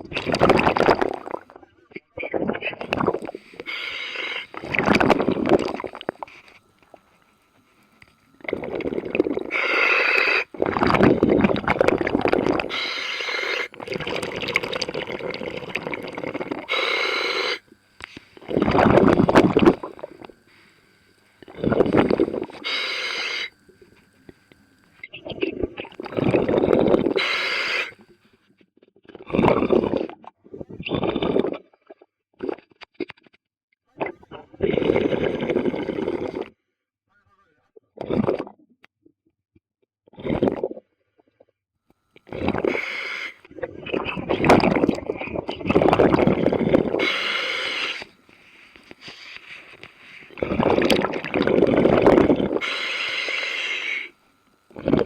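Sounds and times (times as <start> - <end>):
gurgling exhaled bubbles: 0.0 - 1.6, 2.2 - 6.4, 8.4 - 20.5, 21.4 - 23.9, 25.2 - 28.1, 29.1 - 31.7, 34.0 - 36.5, 38.0 - 38.6, 40.1 - 40.8, 42.2 - 48.3, 49.0 - 55.0
diver breathing through regulator: 2.9 - 6.6, 8.5 - 23.8, 26.0 - 28.4, 34.6 - 36.5, 42.2 - 44.8, 45.7 - 55.0.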